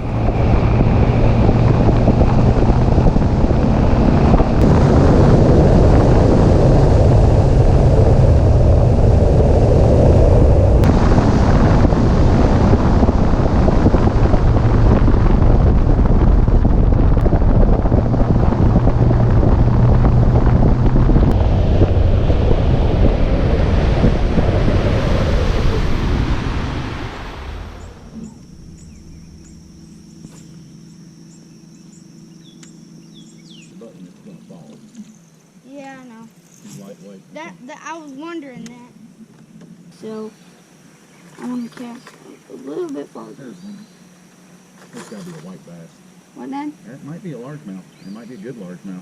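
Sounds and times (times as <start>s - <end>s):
wind rushing over microphone: 0.0s - 31.6s
boat motor drone: 0.0s - 35.6s.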